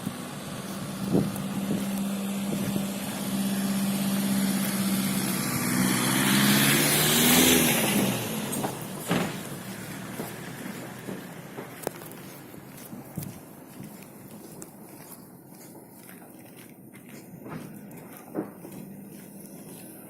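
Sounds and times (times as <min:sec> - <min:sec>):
vehicle engine passing by: 0:00.0 - 0:12.4.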